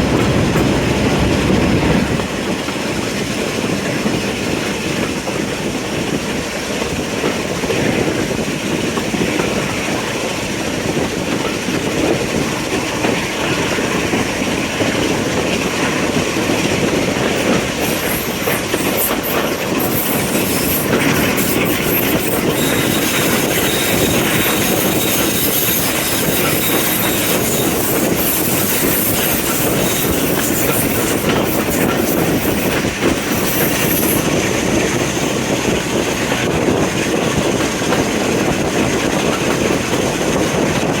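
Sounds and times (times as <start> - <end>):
train wheels rolling on rails: 0.0 - 41.0
faint high wheel squeal: 17.8 - 34.3.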